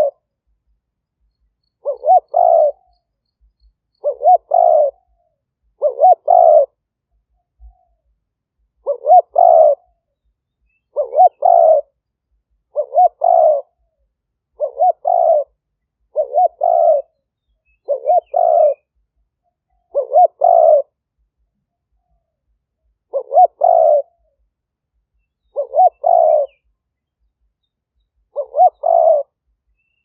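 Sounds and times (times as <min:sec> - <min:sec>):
dove cooing: 0:00.0 - 0:00.3, 0:01.8 - 0:03.0, 0:04.0 - 0:06.8, 0:08.8 - 0:10.0, 0:10.9 - 0:12.0, 0:12.6 - 0:18.9, 0:19.7 - 0:21.0, 0:23.0 - 0:24.5, 0:25.4 - 0:26.7, 0:28.2 - 0:29.4.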